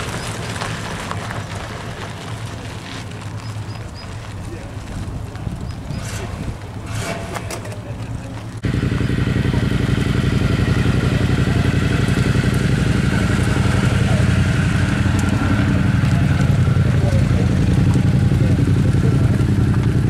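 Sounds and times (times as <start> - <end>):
car engine pulling away: 0.0 - 20.0
turbocharged car engine at low revs: 5.9 - 20.0.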